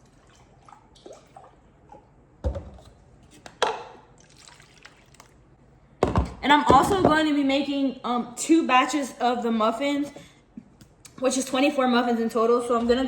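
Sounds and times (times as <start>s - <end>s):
items knocking on counter: 2.4s - 2.8s, 6.0s - 7.3s.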